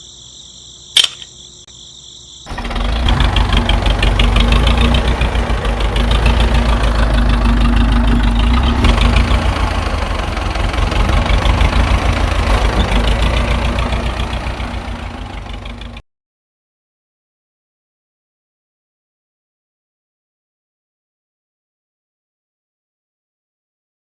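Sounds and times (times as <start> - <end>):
diesel tractor engine knocking: 2.5 - 16.0.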